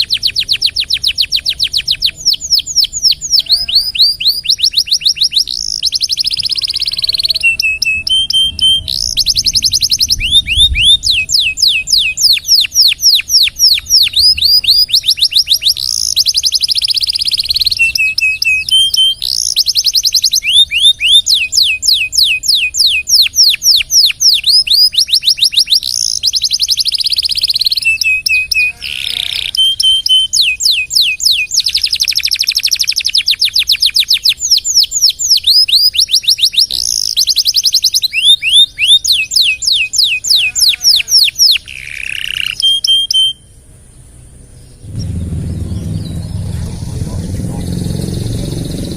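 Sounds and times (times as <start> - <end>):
canary singing trills: 0.0 - 48.9
harsh canary note: 44.8 - 48.9.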